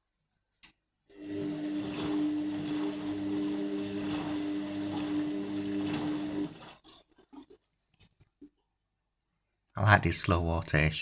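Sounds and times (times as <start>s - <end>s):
washing machine motor hum: 1.1s - 6.9s
water and laundry sloshing: 1.3s - 7.0s.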